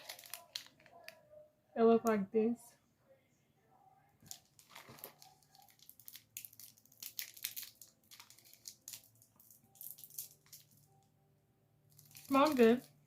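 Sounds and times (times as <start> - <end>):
candy wrapper crackling: 0.0 - 1.2, 4.2 - 11.1, 11.9 - 13.0.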